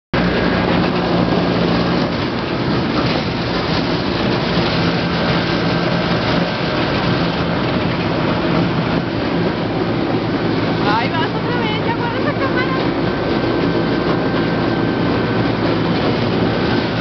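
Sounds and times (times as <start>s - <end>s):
roller coaster rumbling on track: 0.2s - 17.0s.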